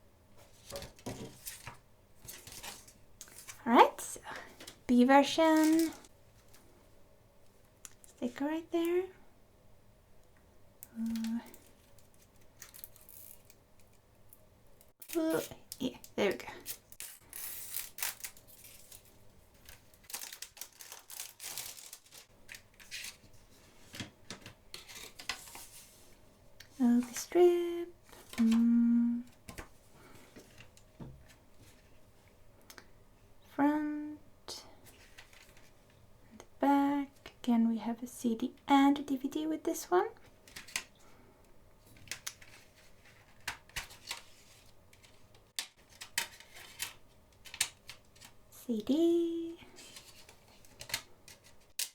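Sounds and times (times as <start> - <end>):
plastic and paper rustling: 0.4 - 6.7, 15.0 - 26.2, 34.8 - 35.9, 41.8 - 48.4, 49.7 - 51.9
plastic shrink-wrap crinkling: 5.4 - 6.1, 11.0 - 13.6, 15.0 - 23.3.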